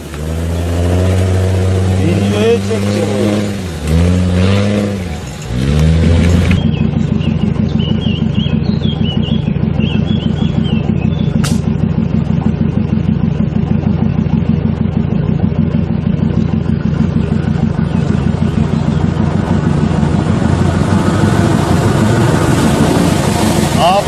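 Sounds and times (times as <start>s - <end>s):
engine idling with rapid pulse: 4.9s - 24.0s
sharp click: 11.4s - 11.7s.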